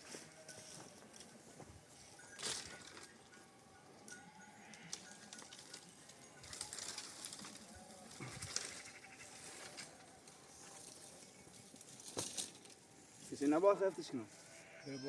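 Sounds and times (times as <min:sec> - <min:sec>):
rustling: 0:04.8 - 0:14.8
livestock bleating faintly: 0:07.7 - 0:10.0, 0:13.8 - 0:15.0.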